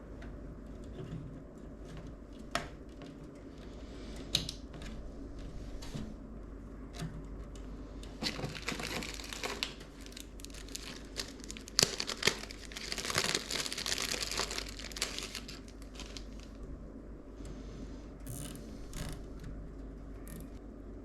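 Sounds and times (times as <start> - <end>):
plastic crinkling: 8.0 - 16.7.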